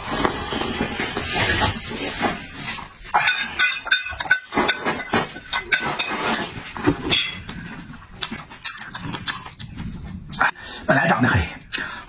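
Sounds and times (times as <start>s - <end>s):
utensils clinking on dish: 0.4s - 7.9s
smacking and chewing: 7.5s - 10.6s.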